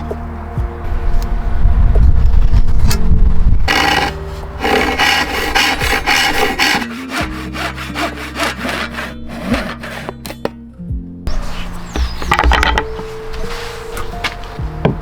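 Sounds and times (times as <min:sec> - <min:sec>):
hand saw cutting wood: 0:03.7 - 0:10.5.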